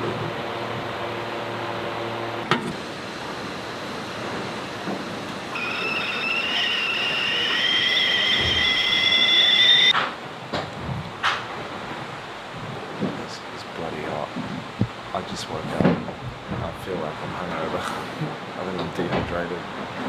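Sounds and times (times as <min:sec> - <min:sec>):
low machinery hum: 0:00.0 - 0:09.9
high whine rising in pitch: 0:02.4 - 0:09.9.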